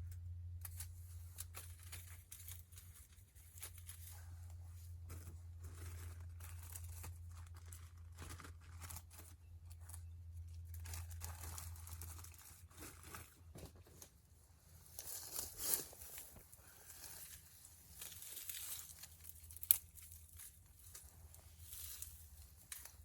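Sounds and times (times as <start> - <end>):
wood fire crackling: 15.0 - 23.0.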